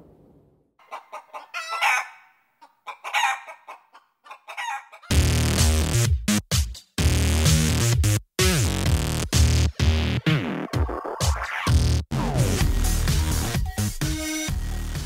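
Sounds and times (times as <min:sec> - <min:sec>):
rooster clucking and crowing: 0:00.8 - 0:05.2
electronic music with drum beat: 0:05.1 - 0:15.0.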